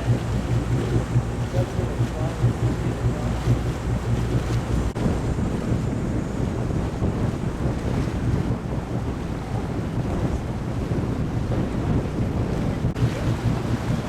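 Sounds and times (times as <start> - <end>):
boat engine running low: 0.0 - 14.0
wind buffeting microphone: 0.0 - 14.0.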